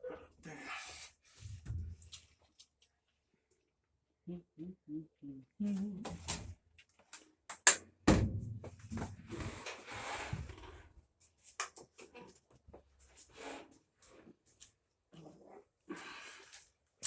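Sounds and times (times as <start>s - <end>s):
parts knocking and clattering: 8.1s - 9.8s.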